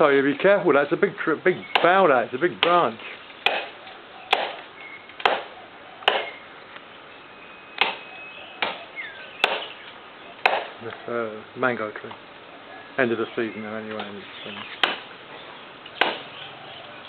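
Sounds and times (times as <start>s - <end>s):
blade chopping into wood: 2.6s - 3.7s, 4.3s - 4.6s, 5.2s - 6.3s, 9.4s - 9.7s, 10.4s - 10.7s, 14.8s - 15.1s, 16.0s - 16.3s.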